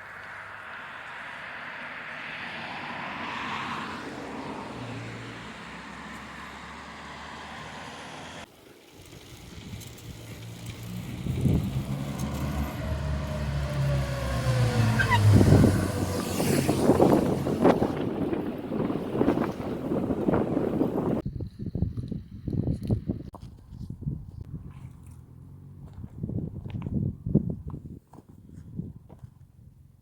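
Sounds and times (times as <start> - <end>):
road vehicle passing by: 0.0 - 21.2, 24.5 - 26.8
wind buffeting microphone: 9.0 - 25.0, 25.7 - 29.9.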